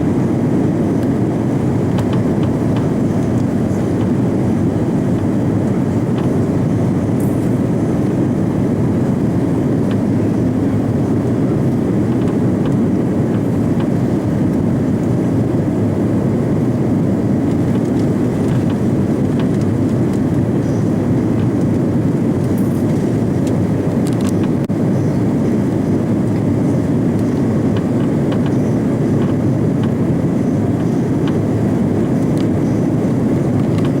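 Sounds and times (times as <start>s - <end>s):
aircraft cabin engine rumble: 0.0s - 34.0s
faint cabin ticks: 27.2s - 30.0s.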